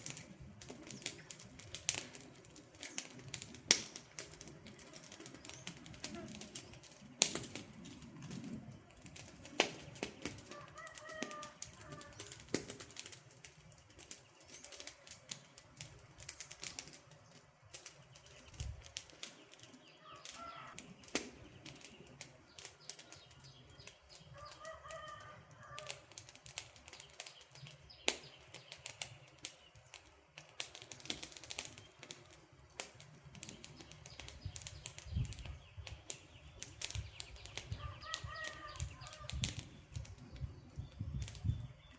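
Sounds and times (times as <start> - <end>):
campfire crackling: 0.0 - 41.9
bird calling: 20.0 - 21.1, 37.2 - 39.4.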